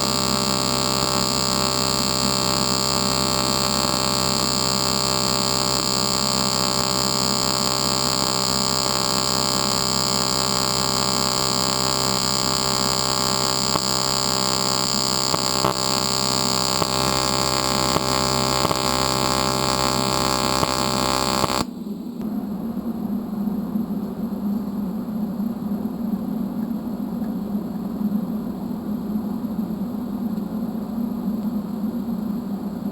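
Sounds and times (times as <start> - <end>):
welder electrical buzz: 0.0 - 21.8.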